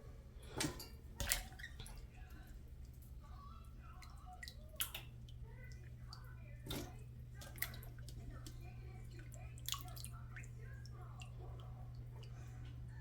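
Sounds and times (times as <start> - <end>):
steady low hum: 0.0 - 13.0
water splashes and drips: 0.6 - 2.2, 3.9 - 12.8.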